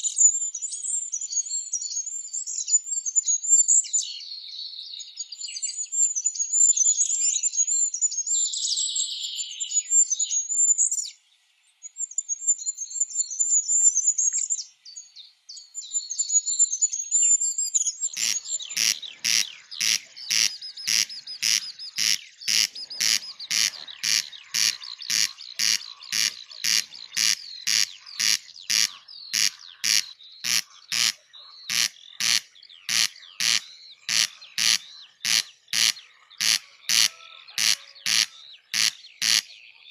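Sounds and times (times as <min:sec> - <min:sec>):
songbirds trilling and warbling: 0:00.0 - 0:39.9
harsh repeated bird call: 0:18.1 - 0:39.5.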